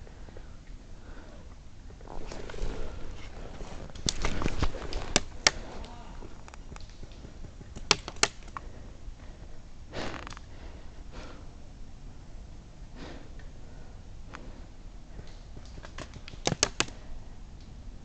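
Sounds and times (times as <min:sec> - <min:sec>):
heavy breathing: 0:00.0 - 0:06.5, 0:08.5 - 0:11.6, 0:12.9 - 0:15.6.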